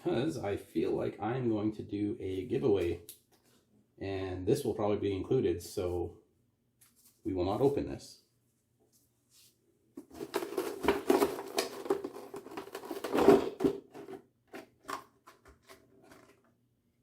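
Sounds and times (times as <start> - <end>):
card packaging crinkling: 10.1 - 16.4.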